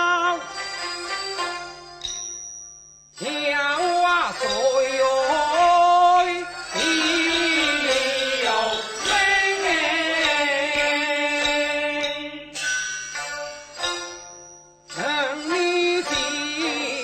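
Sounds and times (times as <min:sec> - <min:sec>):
traditional instrumental ensemble: 0:00.0 - 0:02.5, 0:03.2 - 0:17.0
person singing opera: 0:03.2 - 0:12.6, 0:15.0 - 0:17.0.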